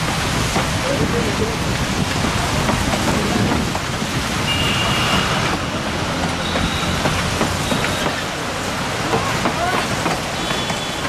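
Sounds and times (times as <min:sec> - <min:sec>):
train wheels rumbling on rails: 0:00.0 - 0:11.0
high wheel squeal: 0:04.4 - 0:08.4, 0:10.3 - 0:11.0.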